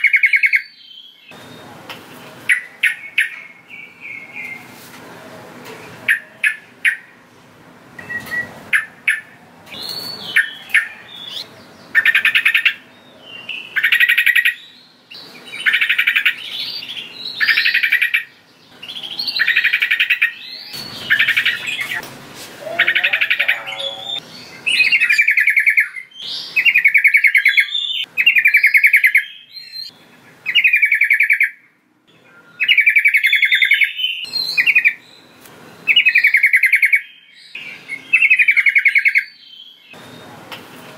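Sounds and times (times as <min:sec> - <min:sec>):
bird singing bubbly phrases: 0:22.6 - 0:31.6.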